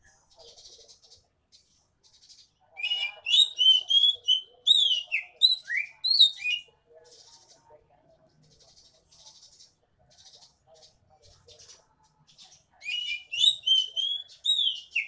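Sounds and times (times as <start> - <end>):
soft scratchy bird chatter: 0.0 - 15.0
bird singing whistled notes: 2.8 - 6.7, 12.8 - 15.0.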